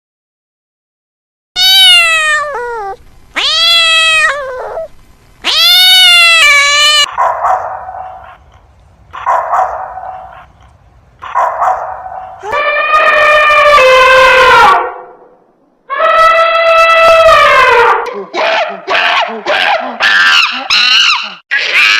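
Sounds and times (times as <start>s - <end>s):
cat meowing: 1.6s - 7.1s
rough cat calls: 1.6s - 7.2s.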